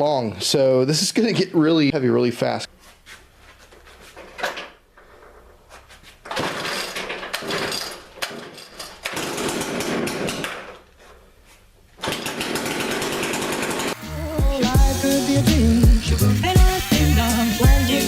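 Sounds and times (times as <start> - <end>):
chainsaw running: 9.1 - 10.4, 12.0 - 18.0.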